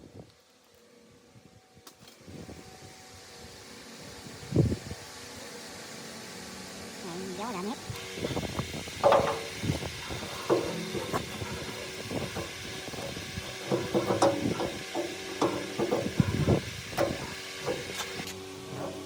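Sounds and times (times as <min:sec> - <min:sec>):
knocks and clatter of hand work: 0:13.6 - 0:16.4.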